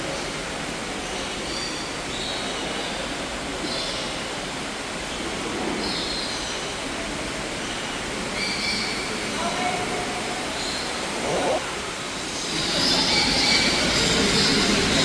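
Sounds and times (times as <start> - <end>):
birds chirping: 11.0 - 11.6
steady rushing background noise: 11.0 - 11.7.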